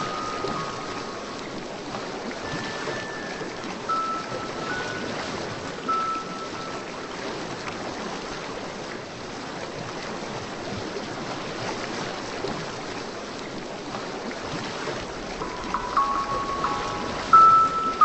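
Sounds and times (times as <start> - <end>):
ocean surf rushing: 0.0 - 8.5, 14.9 - 18.0
short music notes: 15.4 - 18.0.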